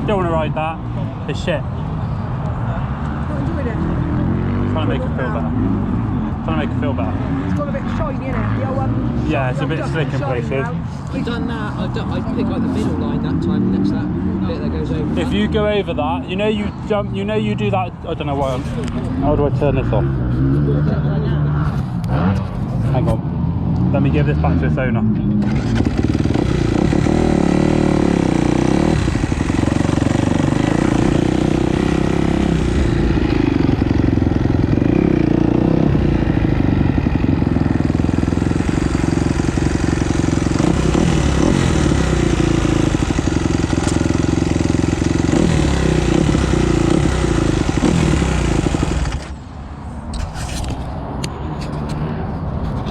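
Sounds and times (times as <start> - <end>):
motocross bike engine revving: 18.4 - 23.1, 23.8 - 49.4.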